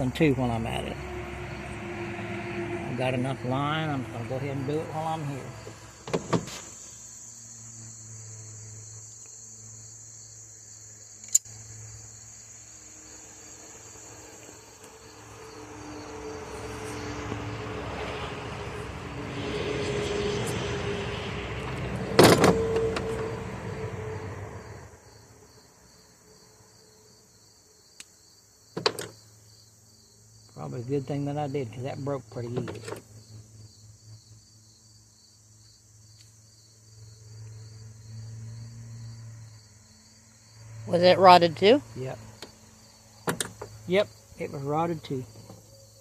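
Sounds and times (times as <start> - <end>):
vehicle passing: 0.0 - 8.9, 11.7 - 26.7, 36.8 - 45.3
insects trilling: 0.0 - 46.0
sharp clicks of tools handled: 11.2 - 11.5.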